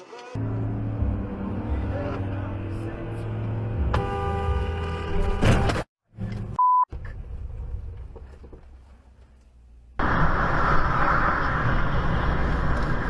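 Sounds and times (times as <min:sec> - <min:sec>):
car road and engine noise: 0:00.0 - 0:13.0
short sharp beep: 0:06.6 - 0:06.9.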